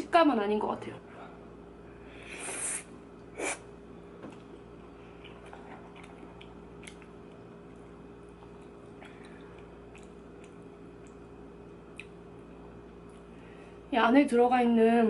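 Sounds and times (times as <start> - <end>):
steady low hum: 0.0 - 15.0
close chewing: 5.1 - 11.3
wet mouth clicks: 5.2 - 7.4, 8.4 - 11.3, 11.9 - 12.2.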